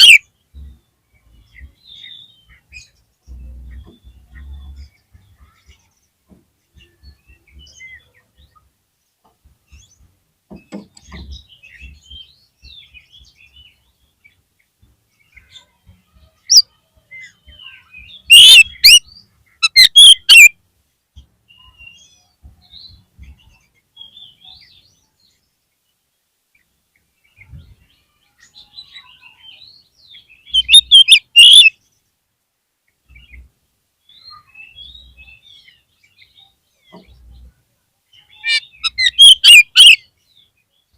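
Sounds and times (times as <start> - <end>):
loud harsh bird calls: 0.0 - 0.8, 15.2 - 20.6, 28.0 - 31.9, 38.2 - 40.6
soft bird chirps and warbling: 0.0 - 40.9.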